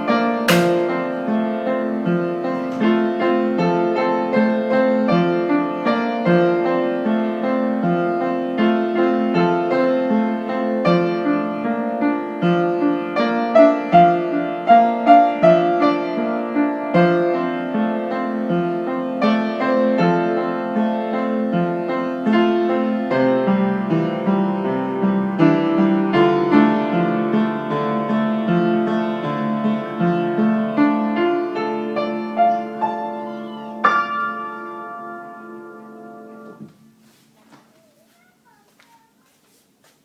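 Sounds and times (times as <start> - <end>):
piano music: 0.0 - 37.0.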